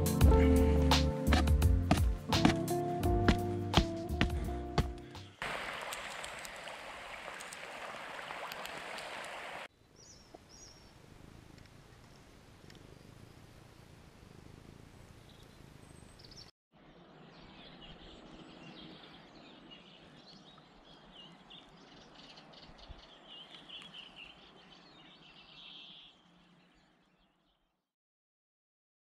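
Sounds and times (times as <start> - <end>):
small birds chirping: 4.3 - 11.0, 14.3 - 27.6.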